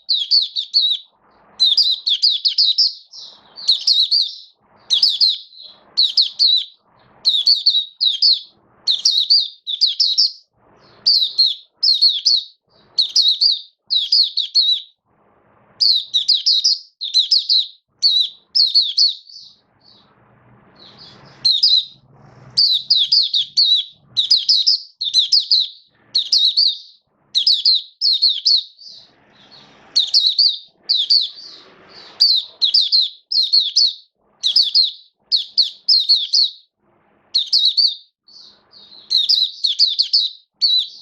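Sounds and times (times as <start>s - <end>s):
bird warbling: 0.0s - 14.9s, 20.8s - 36.5s.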